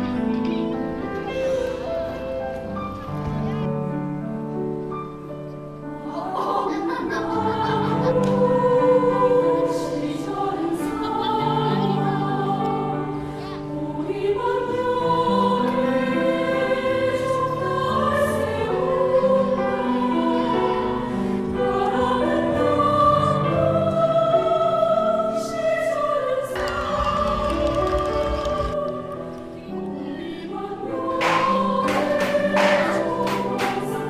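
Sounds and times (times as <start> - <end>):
choir singing sustained notes: 5.8 - 34.0.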